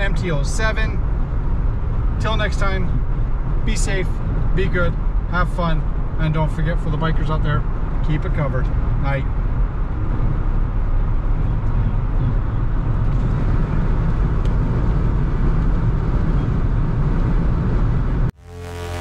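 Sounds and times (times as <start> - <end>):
road noise rumble: 0.0 - 19.0
wind rush: 8.7 - 18.3.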